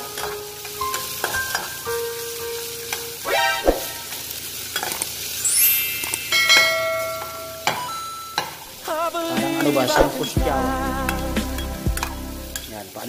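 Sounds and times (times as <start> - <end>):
vegetables sizzling in oil: 0.0 - 13.0
electronic chimes: 5.4 - 8.8
rising sweep sound: 8.8 - 12.7.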